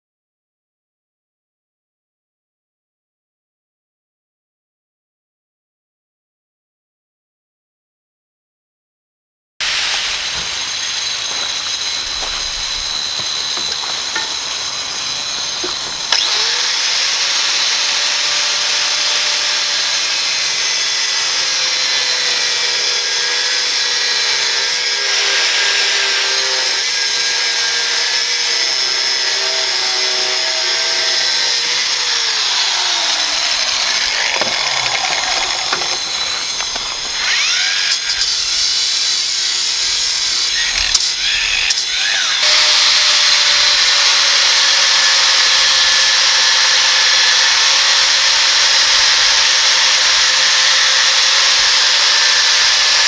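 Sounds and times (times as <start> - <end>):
angle grinder cutting hiss: 9.6 - 53.0
motor whine: 9.7 - 44.6.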